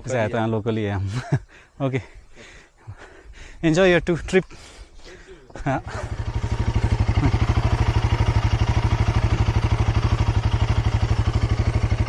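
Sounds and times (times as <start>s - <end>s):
motorcycle engine idling: 5.6s - 12.0s.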